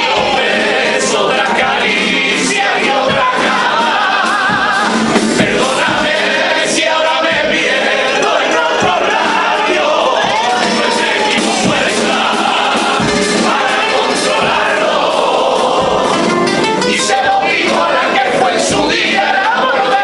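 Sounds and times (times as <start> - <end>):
musical accompaniment: 0.0 - 20.0
people singing together: 0.0 - 20.0.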